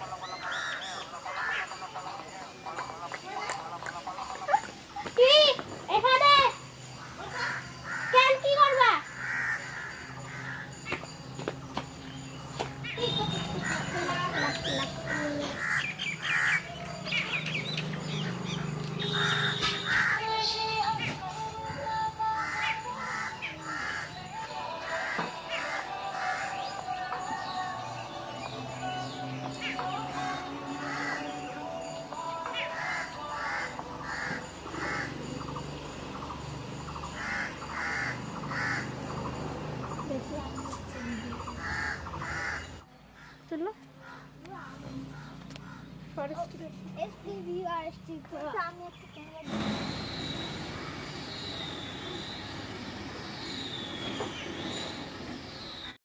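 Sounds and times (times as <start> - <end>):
harsh bird calls: 0.0 - 11.4, 12.0 - 46.4, 48.9 - 56.0
birds chirping: 0.0 - 56.0
crow cawing: 0.1 - 2.0, 7.0 - 10.9, 13.6 - 16.7, 19.1 - 20.4, 22.3 - 26.7, 30.8 - 31.4, 32.6 - 35.2, 37.1 - 39.2, 41.0 - 43.4, 44.0 - 46.0.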